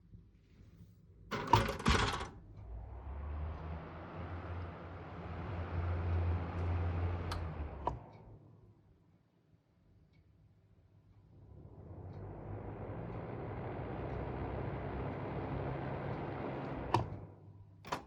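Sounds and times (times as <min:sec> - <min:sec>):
ventilation fan humming: 0:11.3 - 0:17.3.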